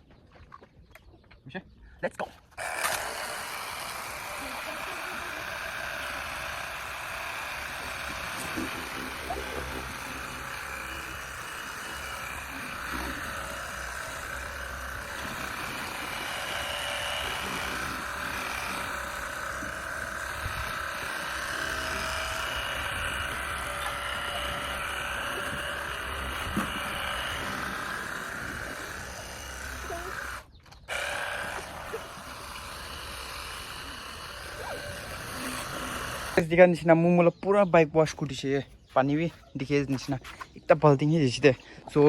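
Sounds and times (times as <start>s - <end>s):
pump motor humming: 2.6s - 36.5s
water spray hissing: 2.8s - 36.4s.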